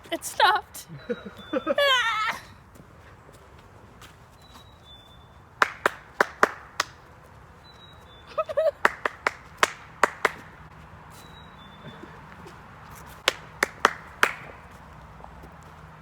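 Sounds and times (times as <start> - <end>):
faint high bird whistle: 1.0 - 2.6
sharp hand claps: 5.6 - 7.1, 8.7 - 10.7, 13.1 - 14.8.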